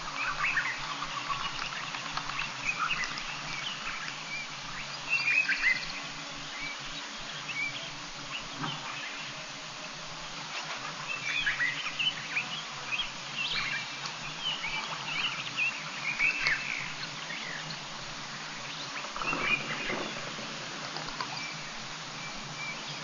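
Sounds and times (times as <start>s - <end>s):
steady background hiss: 0.0s - 23.0s
birds chirping and whistling: 0.1s - 9.5s, 11.0s - 20.4s, 21.1s - 23.0s.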